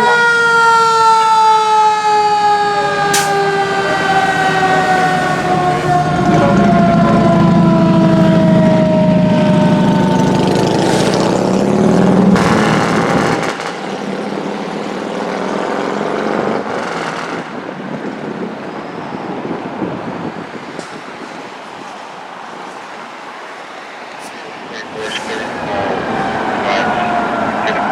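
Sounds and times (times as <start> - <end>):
siren winding down: 0.0 - 11.5
heavy truck engine: 0.0 - 18.7, 19.3 - 27.9
road noise: 0.0 - 27.9.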